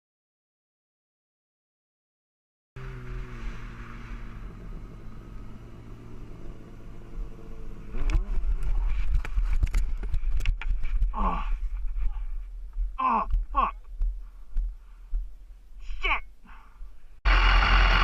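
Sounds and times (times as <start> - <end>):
motorcycle engine running: 2.8 - 10.9
wind rumble: 2.8 - 15.9.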